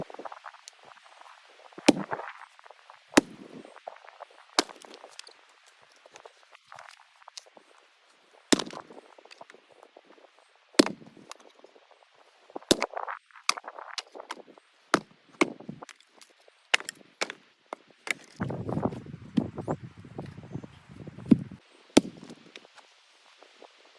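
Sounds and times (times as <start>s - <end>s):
axe chopping firewood: 1.8s - 2.3s, 3.2s - 3.6s, 4.6s - 5.3s, 8.5s - 9.4s, 10.8s - 11.5s, 12.6s - 18.5s, 22.0s - 22.7s.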